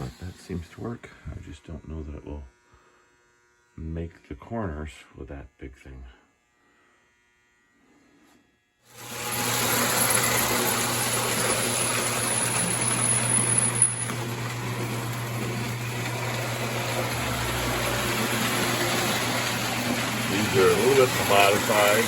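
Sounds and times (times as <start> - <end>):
toy train rattling on track: 9.0 - 22.0.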